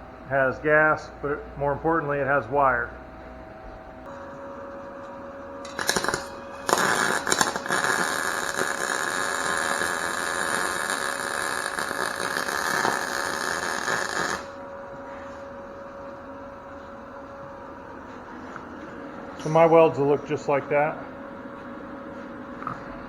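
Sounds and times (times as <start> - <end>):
welder arc crackling: 5.6 - 14.6.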